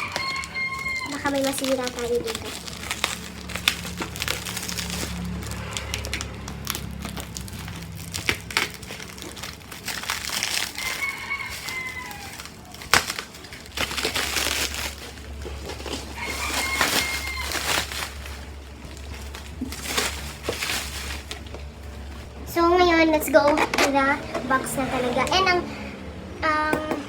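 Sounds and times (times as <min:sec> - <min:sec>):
rooster crowing: 0:00.0 - 0:01.4, 0:10.5 - 0:12.9, 0:15.9 - 0:18.5
plastic cling wrap crinkling: 0:00.0 - 0:25.5.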